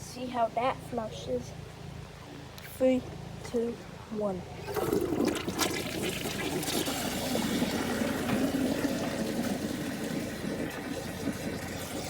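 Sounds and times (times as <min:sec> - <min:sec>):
toilet water rushing: 0:04.6 - 0:12.0.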